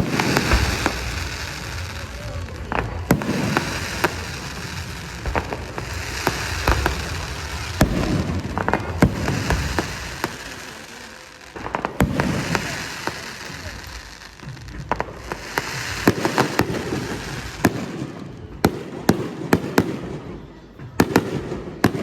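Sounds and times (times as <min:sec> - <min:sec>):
firework shells bursting with bangs: 0:00.0 - 0:20.1
firework crackling: 0:00.0 - 0:22.0.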